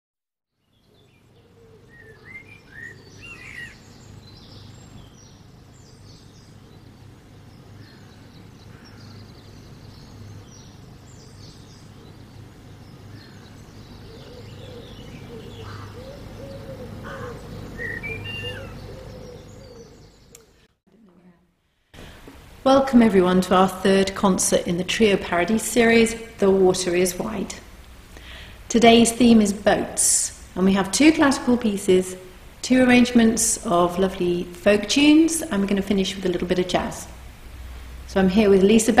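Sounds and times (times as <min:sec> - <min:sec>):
birds chirping and singing: 0:00.6 - 0:20.6
low outdoor rumble: 0:00.9 - 0:39.0.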